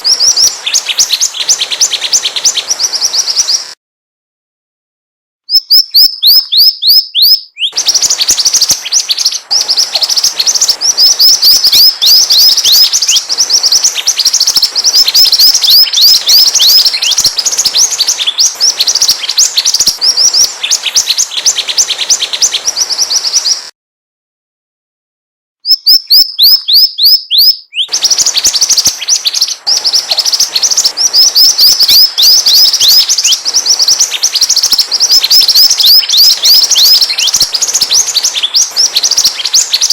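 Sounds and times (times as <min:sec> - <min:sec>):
bird song with rapid high chirps: 0:00.0 - 0:03.8, 0:05.5 - 0:23.7, 0:25.6 - 0:39.9.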